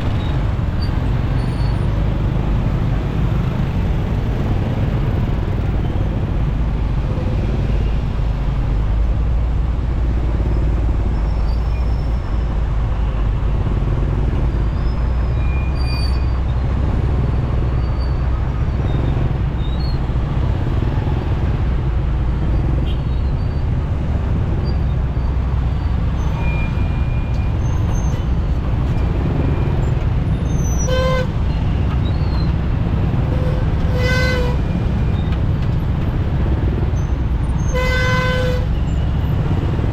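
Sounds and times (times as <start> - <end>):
city traffic: 0.0 - 39.9
horn honks: 30.8 - 31.6, 33.2 - 34.6, 37.7 - 38.9.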